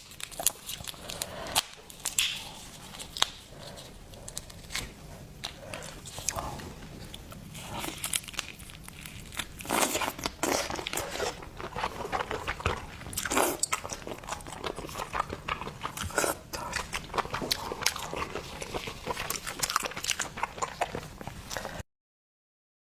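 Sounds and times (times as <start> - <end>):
sharp crackles and smacks: 0.0 - 3.5
crunchy chewing of seafood: 0.0 - 21.8.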